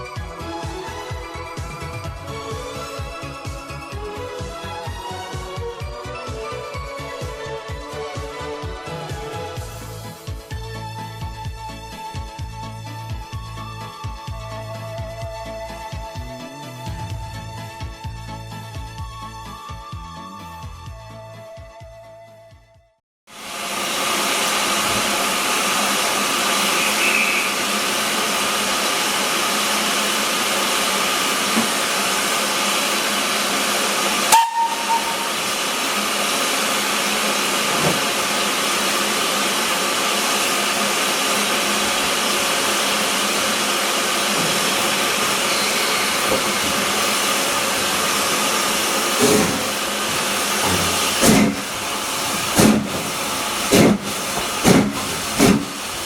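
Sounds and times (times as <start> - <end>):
steam hissing: 23.4 - 56.0
steam locomotive exhaust beats: 23.4 - 56.0.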